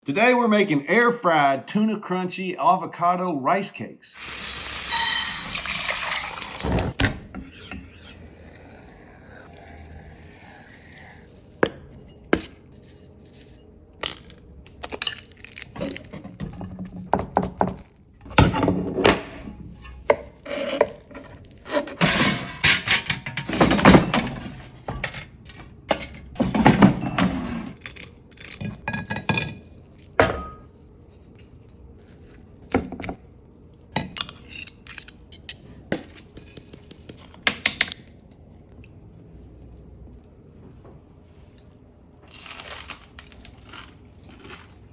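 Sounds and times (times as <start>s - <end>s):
scraping or mixing noises: 4.2s - 37.4s
utensils and dishes clinking: 19.6s - 30.8s.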